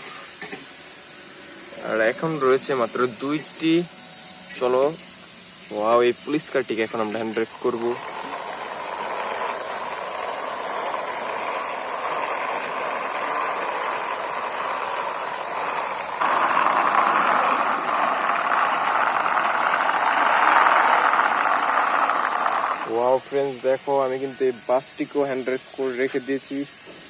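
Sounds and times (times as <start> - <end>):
toy bus wheels rolling: 5.7 - 26.8.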